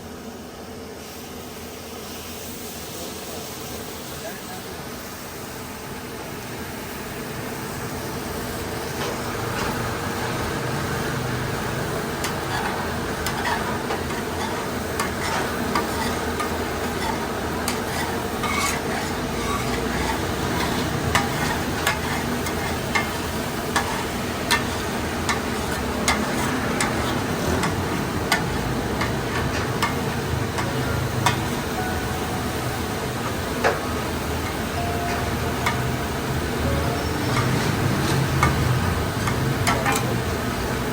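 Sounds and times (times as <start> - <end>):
food sizzling in a hot pan: 1.0 - 40.9
metal spatula clinking on pan: 12.2 - 31.8.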